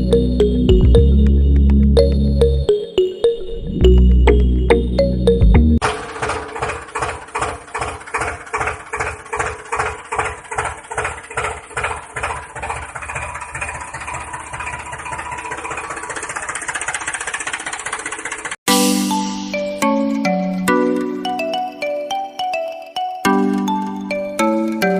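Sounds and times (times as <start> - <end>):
tractor engine chugging: 5.8 - 18.6.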